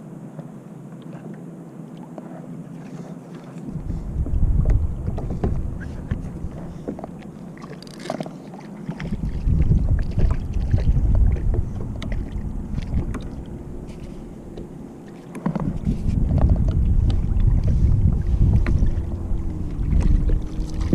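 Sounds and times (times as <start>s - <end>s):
clicks and knocks against hull: 2.9s - 19.1s
wind gusting over microphone: 3.7s - 7.2s, 9.0s - 20.9s.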